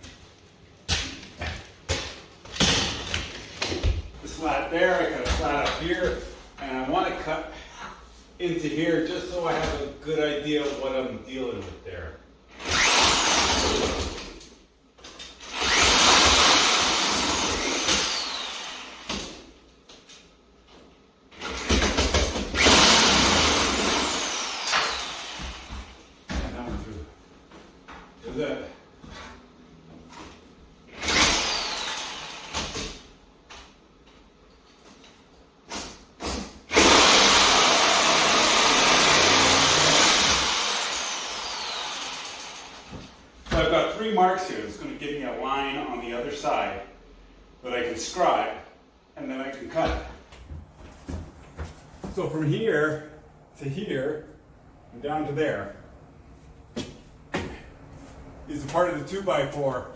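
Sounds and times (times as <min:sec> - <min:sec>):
power drill boring through plaster: 0:12.6 - 0:14.4, 0:15.4 - 0:19.4, 0:21.4 - 0:26.0, 0:30.9 - 0:33.0, 0:36.3 - 0:43.1
power tool motor whine: 0:36.7 - 0:42.9.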